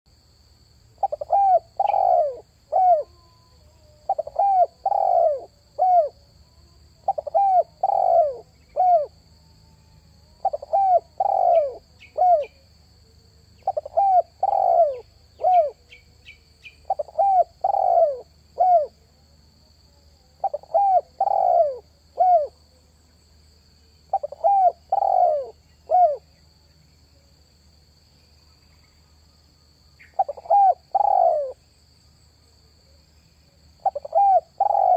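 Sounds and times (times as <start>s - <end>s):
small birds chirping: 1.0s - 3.1s, 7.1s - 9.1s, 10.4s - 12.6s, 13.6s - 18.9s, 24.1s - 26.2s, 33.8s - 34.9s
dove cooing: 1.0s - 6.2s, 7.0s - 9.2s, 10.4s - 12.6s, 13.6s - 15.9s, 16.8s - 18.9s, 20.4s - 22.5s, 24.1s - 26.2s, 30.1s - 31.6s, 33.8s - 34.9s.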